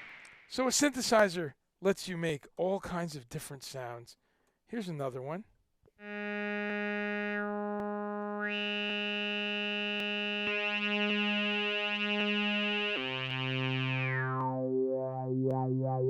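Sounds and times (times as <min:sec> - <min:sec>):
synthesizer held note: 0:06.0 - 0:16.0.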